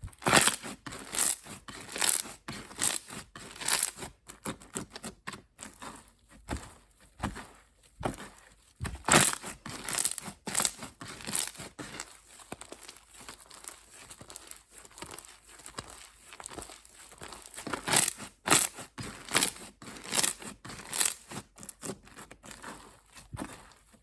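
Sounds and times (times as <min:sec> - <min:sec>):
slime crackling: 0:00.1 - 0:05.0, 0:07.2 - 0:23.9.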